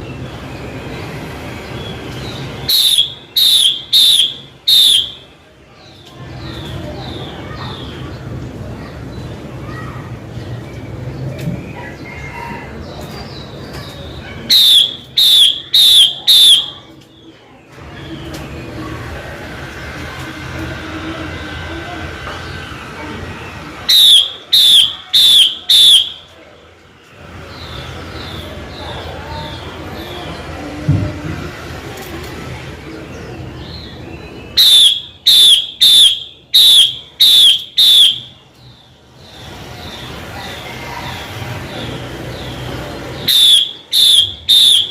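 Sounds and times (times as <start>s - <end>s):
loud whistled bird notes: 0.1s - 5.3s, 14.5s - 16.9s, 23.5s - 26.3s, 33.6s - 40.1s, 42.3s - 44.9s
bird twittering chirps: 0.4s - 5.2s, 23.8s - 26.3s, 33.4s - 40.2s, 41.8s - 44.9s.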